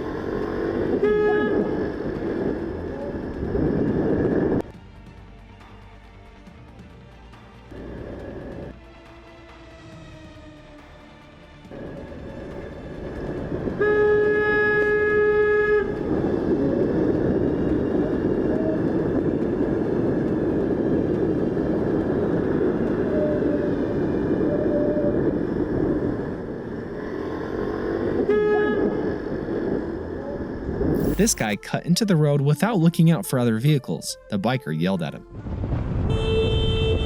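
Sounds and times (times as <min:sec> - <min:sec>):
engine noise: 0:00.0 - 0:04.8, 0:07.1 - 0:31.6
vehicle horn blaring: 0:00.6 - 0:02.8, 0:13.6 - 0:17.0, 0:28.2 - 0:29.4, 0:35.9 - 0:37.0
wind rushing: 0:00.6 - 0:04.7, 0:11.7 - 0:31.6.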